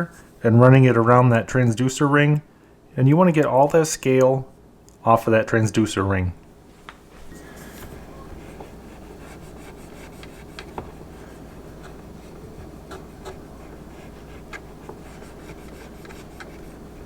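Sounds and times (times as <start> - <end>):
cotton swab scrubbing: 7.4 - 17.0.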